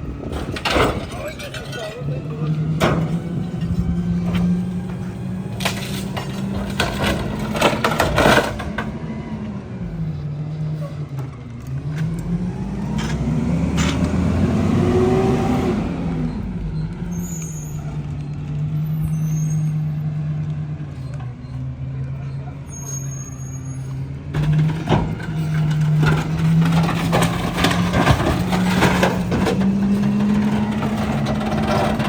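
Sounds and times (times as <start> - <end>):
trash cracking and crunching: 0.0 - 10.0, 24.2 - 32.0
diesel engine revving and idling: 0.0 - 32.0.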